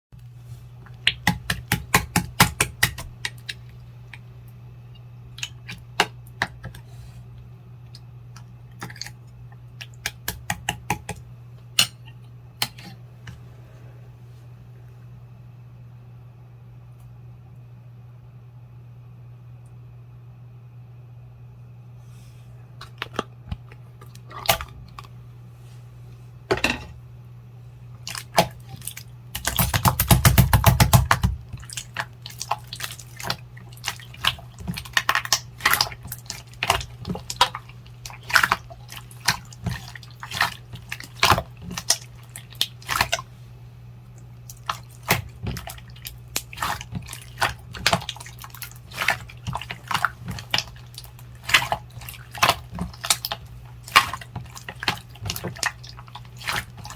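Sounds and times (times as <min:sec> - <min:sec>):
steady low hum: 0:00.1 - 0:56.9
wet clicks and pops: 0:01.0 - 0:04.2
slime squished by hand: 0:28.0 - 0:43.4, 0:44.4 - 0:56.9.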